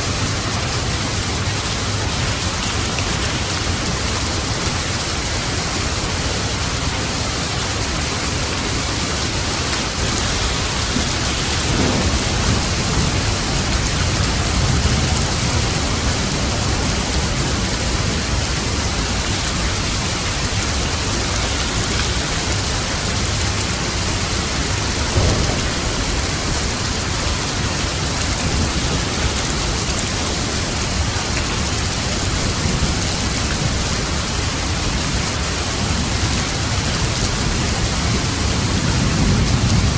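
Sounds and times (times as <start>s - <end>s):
steady rain: 0.0s - 39.9s
thunder rumbling: 0.0s - 39.9s.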